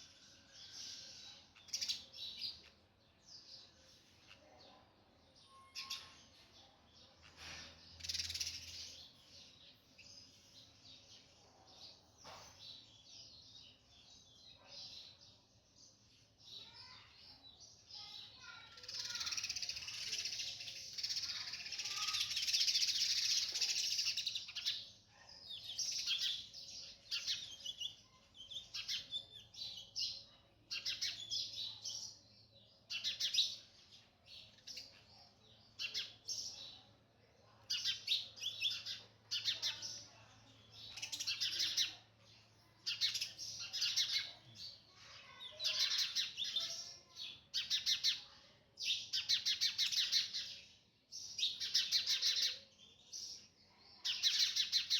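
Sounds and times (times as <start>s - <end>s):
bird twittering and chirping: 7.2s - 9.2s.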